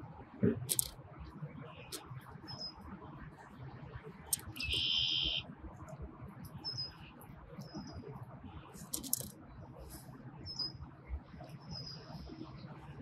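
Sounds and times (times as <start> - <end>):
high bird chirps: 4.3 - 5.4
loud high bird call: 4.6 - 5.4.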